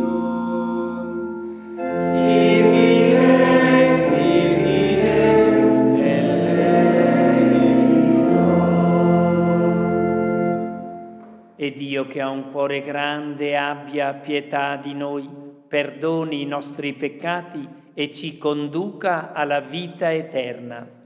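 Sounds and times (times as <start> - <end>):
choir chanting: 0.0 - 11.2
instrumental accompaniment: 0.0 - 11.6.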